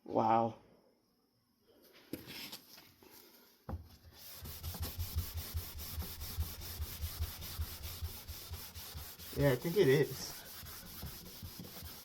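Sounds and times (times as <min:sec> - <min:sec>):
cloth scrubbing fan blade: 0:04.3 - 0:12.0.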